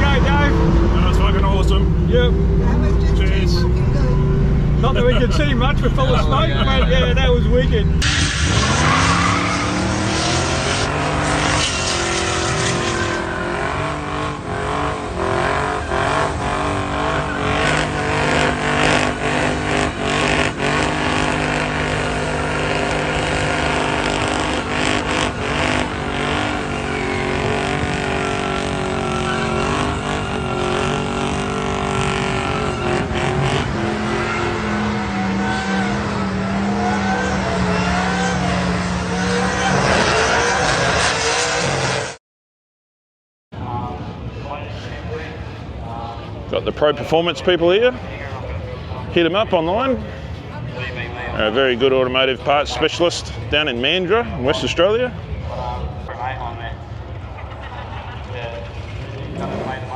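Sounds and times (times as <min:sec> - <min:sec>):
car engine at high revs: 0:00.0 - 0:42.2, 0:58.7 - 0:59.9.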